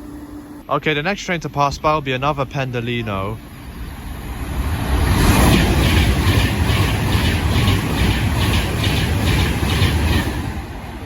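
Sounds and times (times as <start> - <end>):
train rushing past: 0.9 - 11.0
train wheels clattering: 5.1 - 11.0.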